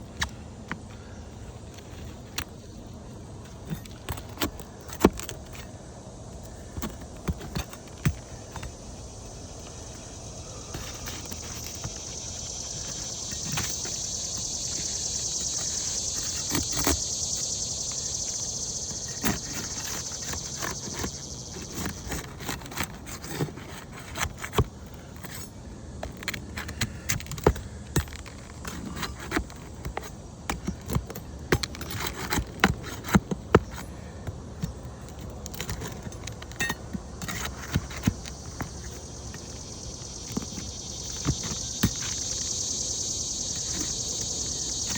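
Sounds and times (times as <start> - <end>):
steady high buzz: 7.8 - 22.7, 36.7 - 44.9
metal tools clicking on shingles: 10.7 - 39.6.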